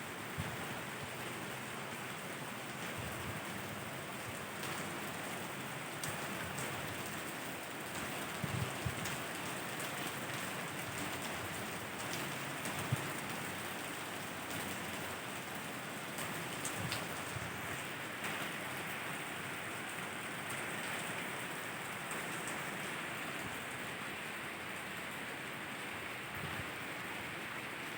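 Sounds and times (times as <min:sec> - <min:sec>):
rain pattering on surfaces: 0:00.0 - 0:27.9.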